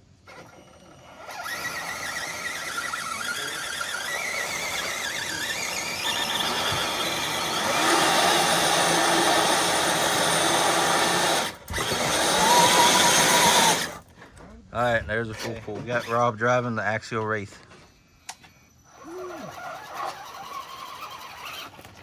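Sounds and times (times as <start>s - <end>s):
electric motor whining: 0.2s - 14.0s, 18.8s - 22.0s.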